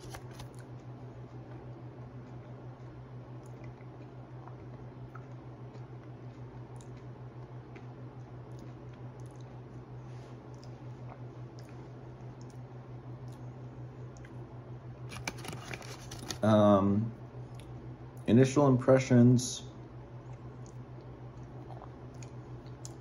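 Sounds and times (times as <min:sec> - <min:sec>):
steady low hum: 0:00.0 - 0:23.0
person chewing chocolate: 0:02.3 - 0:13.5, 0:20.2 - 0:23.0.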